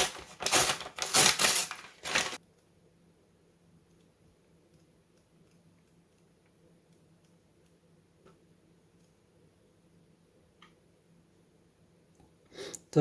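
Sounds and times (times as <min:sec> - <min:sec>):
packaging rustling: 0:00.0 - 0:02.4.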